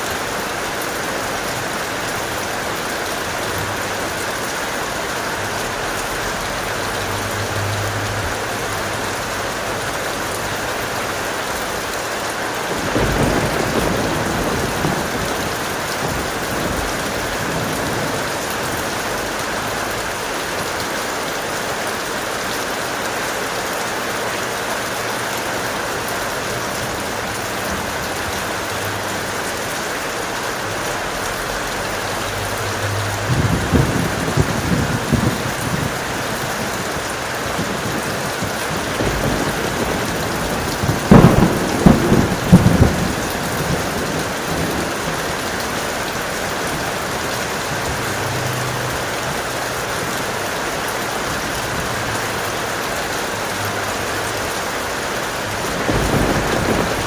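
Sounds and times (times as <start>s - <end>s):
heavy rain falling: 0.0s - 57.0s
thunder rumbling: 12.6s - 20.6s, 32.0s - 49.5s, 55.4s - 57.0s
sharp thunderclap: 12.7s - 19.0s, 33.3s - 45.4s, 55.6s - 57.0s.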